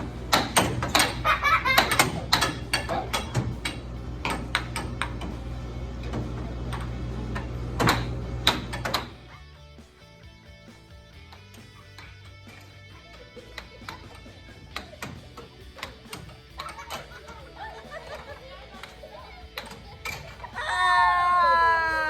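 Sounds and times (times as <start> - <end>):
sharp clicks and knocks: 0.0 - 9.2, 11.2 - 17.4, 18.8 - 20.4
steady low hum: 0.0 - 9.3.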